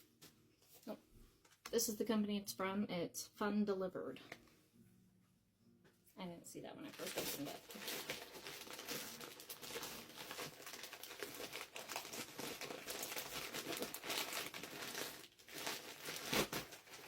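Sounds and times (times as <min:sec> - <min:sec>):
packaging crinkling and rustling: 0:06.9 - 0:17.0.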